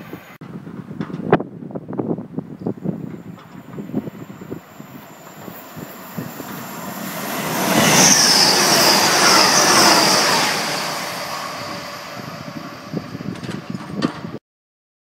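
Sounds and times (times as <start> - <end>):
train passing: 2.9 - 14.0
high-pitched wheel squeal: 4.3 - 13.2.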